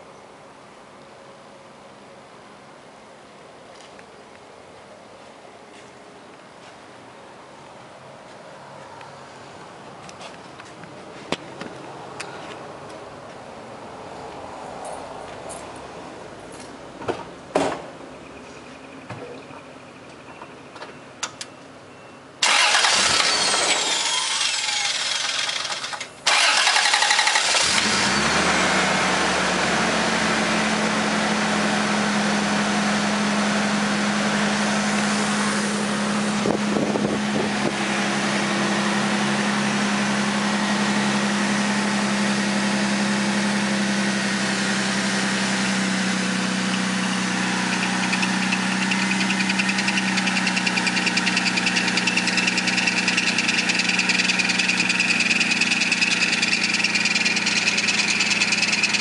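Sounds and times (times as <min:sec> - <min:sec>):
starter motor cranking engine: 0:22.4 - 0:28.8, 0:47.6 - 0:59.0
car engine idling: 0:22.4 - 0:59.0.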